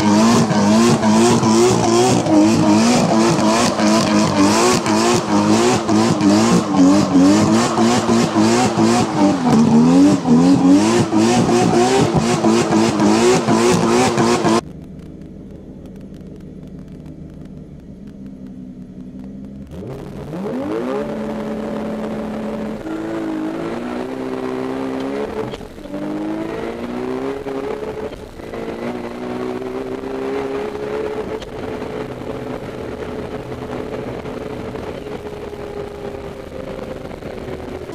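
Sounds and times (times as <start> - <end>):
engine revving up: 0.0 - 14.6, 19.7 - 31.9
car engine revving with crackle: 0.0 - 37.9
low engine idling: 14.6 - 19.8.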